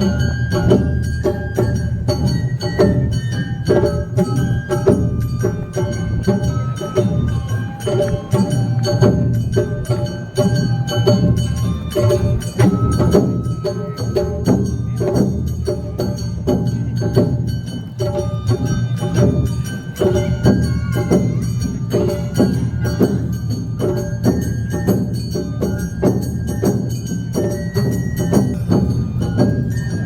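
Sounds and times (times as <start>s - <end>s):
flute melody: 0.0s - 15.0s, 18.0s - 30.0s
drums beating: 0.0s - 30.0s
lute melody: 0.0s - 30.0s.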